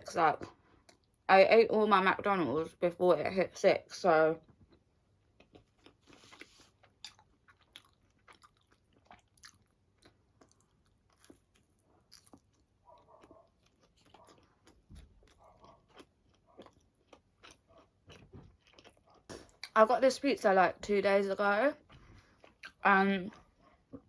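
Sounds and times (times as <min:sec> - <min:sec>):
person chewing pizza: 0:04.5 - 0:19.8, 0:21.8 - 0:24.0.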